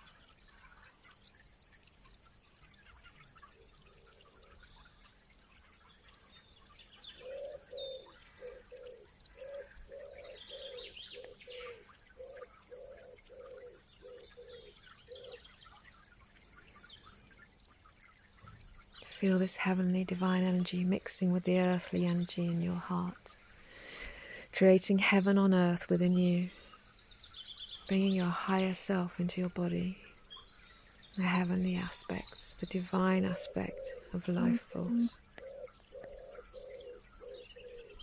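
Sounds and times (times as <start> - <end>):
small birds chirping: 0.0 - 38.0
low cooing: 33.2 - 38.0.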